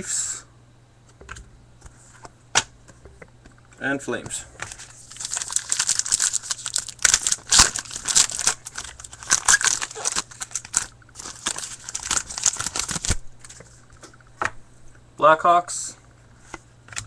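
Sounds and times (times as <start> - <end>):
plastic wrapper crinkling: 4.7 - 13.6.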